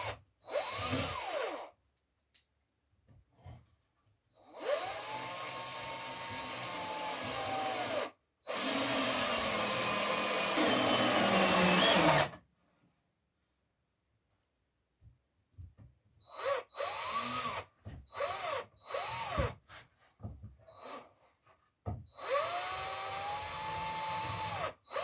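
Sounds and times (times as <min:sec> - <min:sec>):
power drill running: 0:00.5 - 0:01.7, 0:04.5 - 0:12.3, 0:16.3 - 0:17.6, 0:18.2 - 0:19.4, 0:22.2 - 0:25.0.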